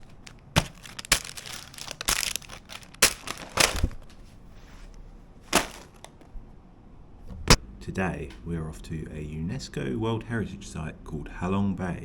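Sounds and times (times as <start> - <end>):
crinkling handling noise: 0.0 - 6.4.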